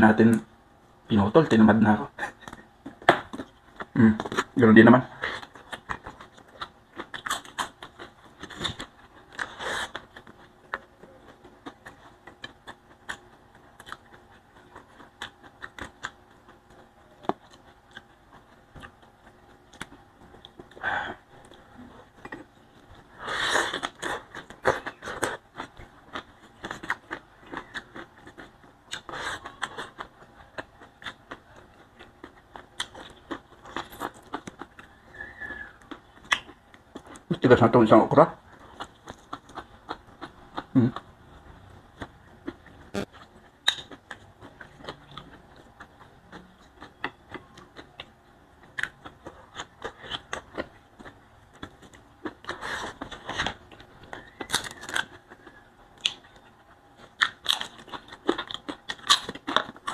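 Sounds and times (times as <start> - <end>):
person chewing food: 2.2 - 37.4, 38.4 - 59.9.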